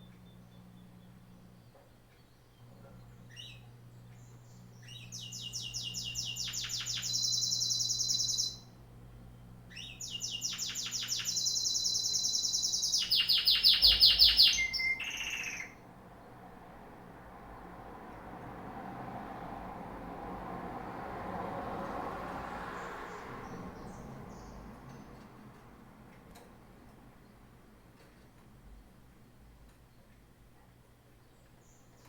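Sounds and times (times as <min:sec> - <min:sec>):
songbird singing high notes: 0:04.8 - 0:08.7, 0:09.7 - 0:15.8.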